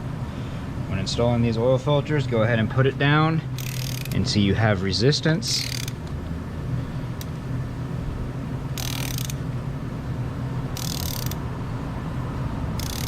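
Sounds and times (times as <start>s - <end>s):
steady low hum: 0.0s - 13.0s
ratchet clicking: 3.6s - 4.2s, 5.5s - 6.2s, 7.2s - 7.4s, 8.7s - 9.4s, 10.0s - 11.5s, 12.8s - 13.0s.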